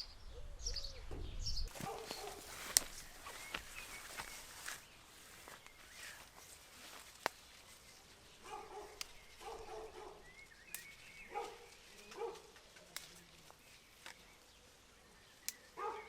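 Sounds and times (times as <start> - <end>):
dog barking: 1.7 - 2.5, 8.4 - 10.3, 11.3 - 12.5, 15.8 - 16.0
sharp clicks: 10.7 - 11.2.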